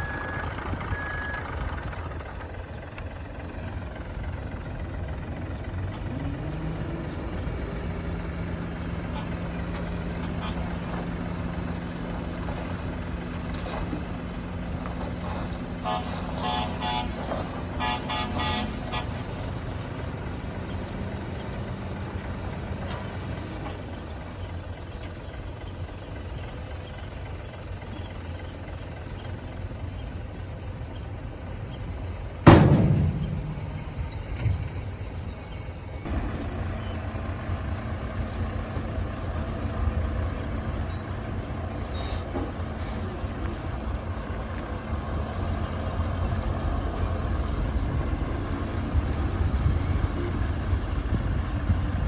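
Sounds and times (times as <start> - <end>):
diesel truck engine running: 0.0 - 52.0
air brake hiss: 41.9 - 43.0.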